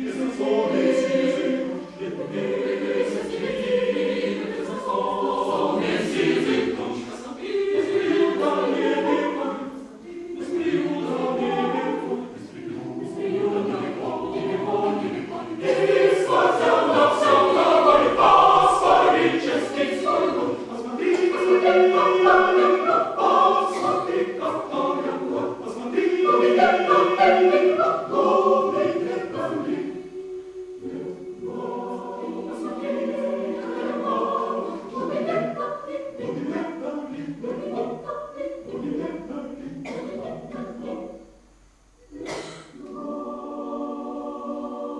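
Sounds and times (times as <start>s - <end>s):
choir singing a cappella: 0.0s - 44.9s.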